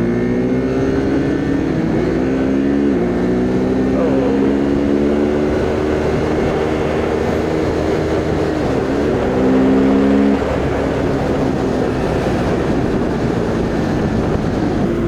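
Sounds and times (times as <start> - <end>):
motorcycle engine running: 0.0 - 15.0
wind rushing over microphone: 3.0 - 15.0.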